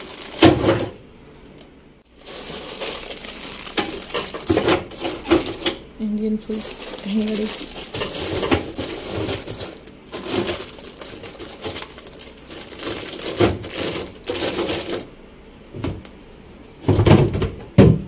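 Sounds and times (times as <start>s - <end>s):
food packets clattering and rustling: 0.0s - 1.0s, 2.1s - 5.8s, 6.4s - 15.1s.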